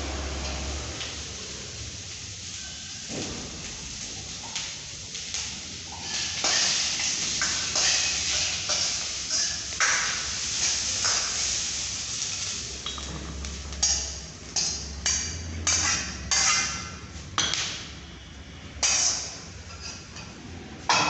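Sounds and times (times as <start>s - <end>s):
kitchenware clinking: 12.8s - 17.7s.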